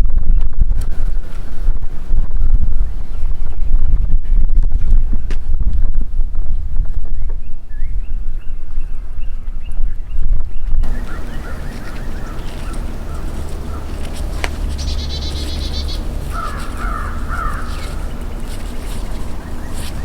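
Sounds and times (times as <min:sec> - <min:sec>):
steady low rumble: 0:00.0 - 0:20.0
birds calling harshly: 0:07.2 - 0:20.0
high bird trill: 0:10.8 - 0:20.0.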